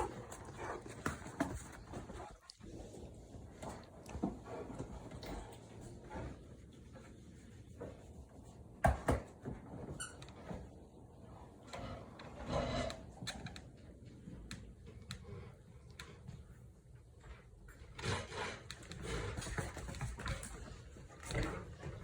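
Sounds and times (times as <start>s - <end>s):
dog scuffling on floor: 0.0s - 10.7s.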